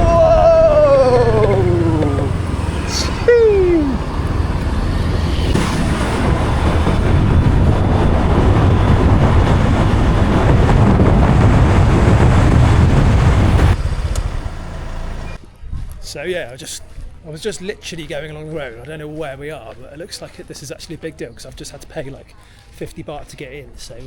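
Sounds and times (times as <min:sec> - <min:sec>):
scooter engine running: 0:00.0 - 0:04.1
wind buffeting microphone: 0:00.0 - 0:14.0
road noise: 0:00.0 - 0:15.5.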